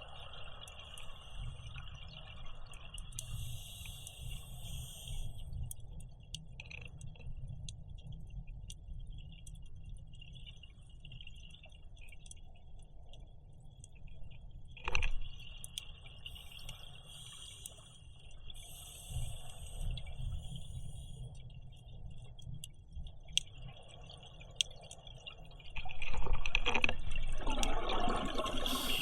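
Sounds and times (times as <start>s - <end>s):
crackling clicks: 0.6s - 29.0s
regulator exhaling bubbles: 27.6s - 29.0s.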